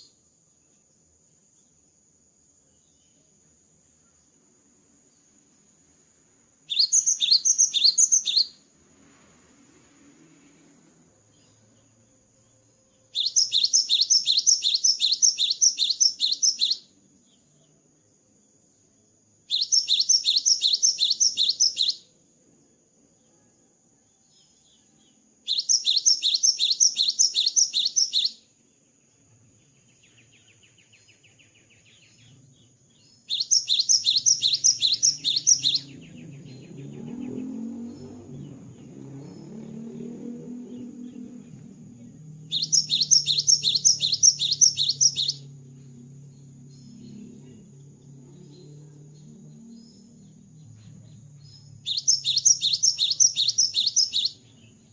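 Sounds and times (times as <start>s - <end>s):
bird singing high sharp notes: 6.7s - 8.6s, 13.1s - 17.0s, 19.5s - 22.1s, 25.5s - 28.4s, 33.3s - 47.4s, 51.4s - 54.9s.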